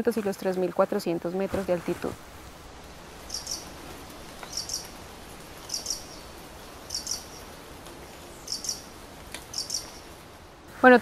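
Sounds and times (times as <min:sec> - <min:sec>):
background hiss: 0:00.0 - 0:11.0
small bird double chirps: 0:09.5 - 0:10.0.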